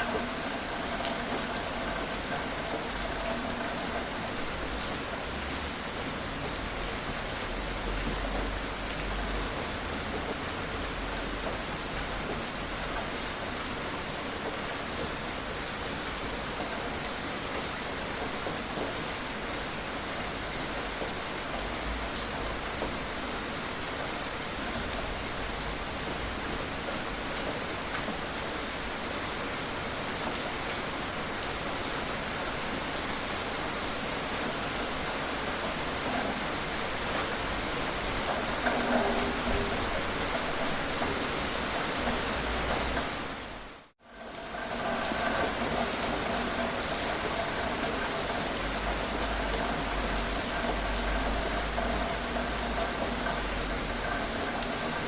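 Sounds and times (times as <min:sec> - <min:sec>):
raindrops ticking: 0:00.0 - 0:13.4, 0:34.5 - 0:55.0
steady rain falling: 0:00.0 - 0:55.0.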